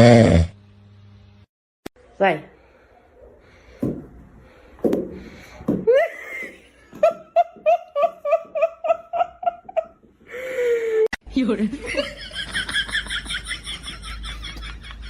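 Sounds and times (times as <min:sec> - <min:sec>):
person laughing: 0:05.8 - 0:11.1.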